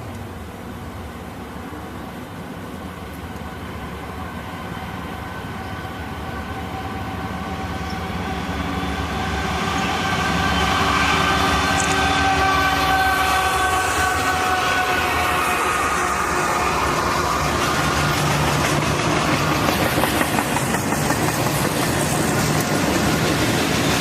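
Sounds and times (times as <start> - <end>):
diesel train rumble: 0.0 - 24.0
chord-like horn tones: 9.9 - 17.4.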